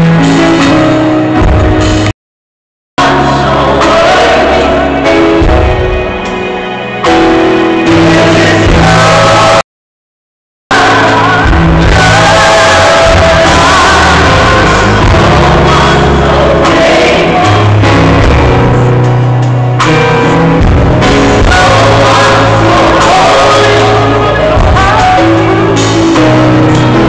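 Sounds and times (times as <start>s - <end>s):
gospel music with singing: 3.0s - 9.6s, 10.7s - 27.0s.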